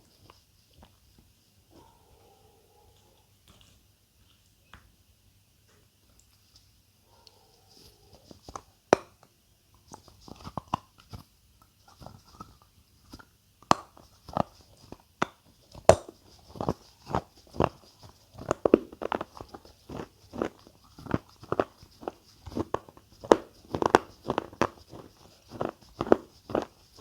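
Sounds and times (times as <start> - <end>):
crunchy food chewing: 9.8 - 27.0.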